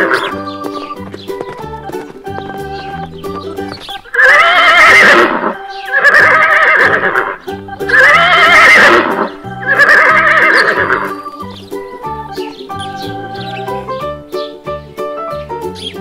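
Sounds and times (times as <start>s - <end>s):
horse whinnying: 0.0s - 0.4s, 4.0s - 11.3s
background music with steady beat: 0.0s - 16.0s.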